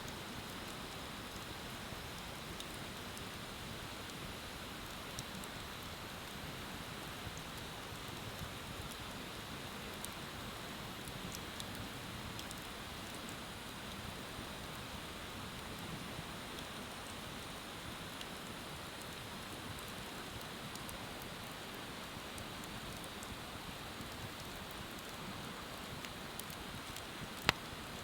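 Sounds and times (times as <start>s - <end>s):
bonfire crackling: 7.3s - 15.8s, 18.2s - 28.0s.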